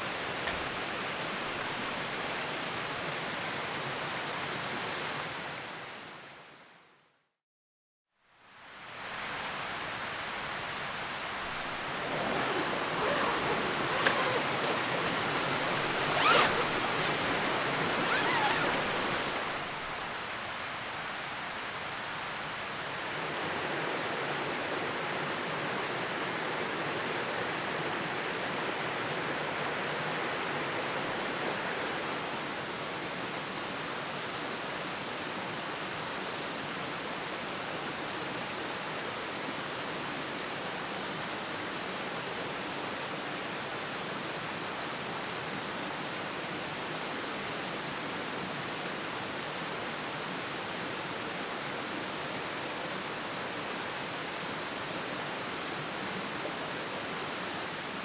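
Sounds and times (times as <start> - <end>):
rustling: 11.3 - 20.2.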